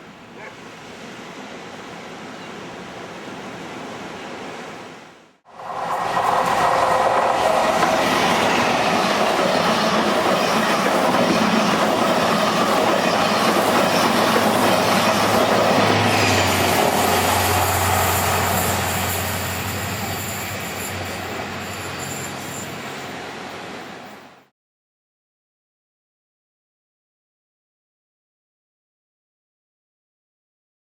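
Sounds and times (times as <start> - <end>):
train passing at speed: 2.8 - 24.5.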